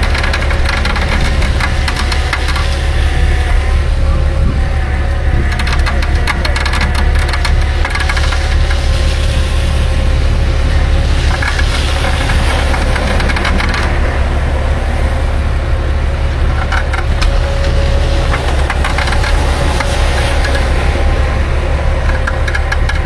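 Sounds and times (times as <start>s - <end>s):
truck engine droning: 0.0s - 23.0s.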